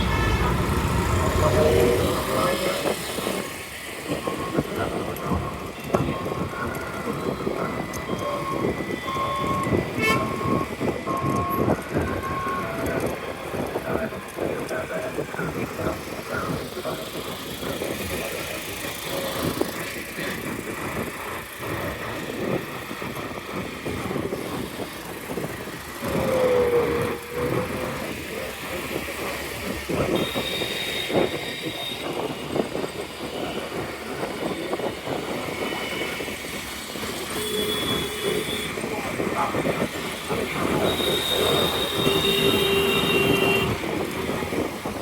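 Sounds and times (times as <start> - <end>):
two-tone metallic squeal: 0.0 - 3.1
road traffic noise: 0.0 - 45.0.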